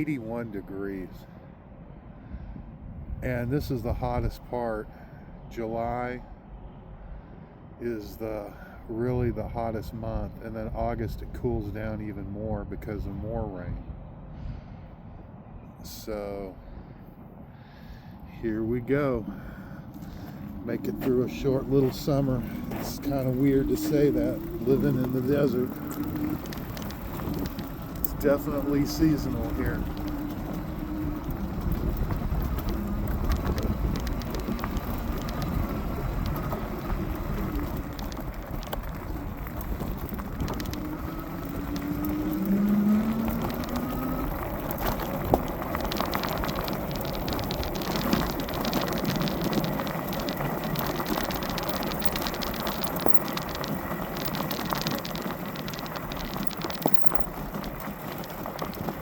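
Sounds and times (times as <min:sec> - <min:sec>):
wind on microphone: 0:02.1 - 0:04.5, 0:19.2 - 0:57.7
scattered ticks: 0:19.9 - 0:59.0
electric motor whine: 0:22.4 - 0:53.7.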